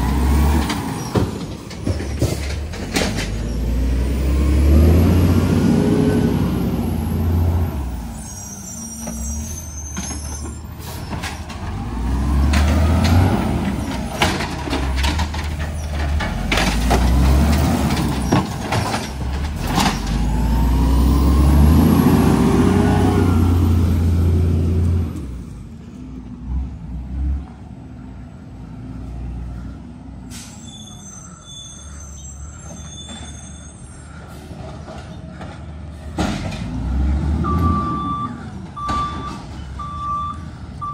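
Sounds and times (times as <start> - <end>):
diesel engine revving: 0.0 - 27.8, 35.6 - 40.9
metal clanks and bangs: 0.6 - 3.5.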